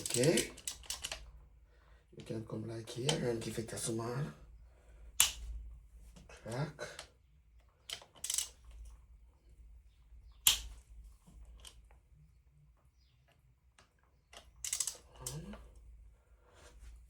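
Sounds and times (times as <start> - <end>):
bolts cracking loose: 0.0 - 1.3, 5.2 - 5.5, 7.8 - 8.9, 14.3 - 15.7.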